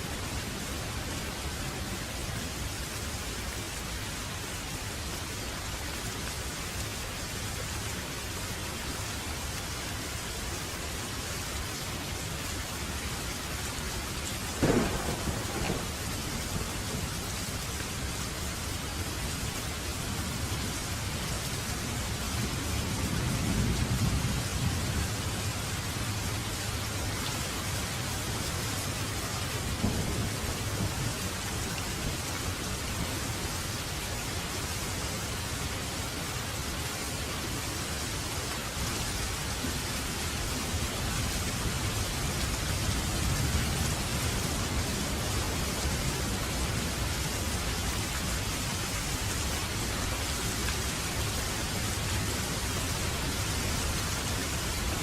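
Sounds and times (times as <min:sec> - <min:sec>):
heavy rain: 0:00.0 - 0:55.0
thunder rumble: 0:14.6 - 0:17.5.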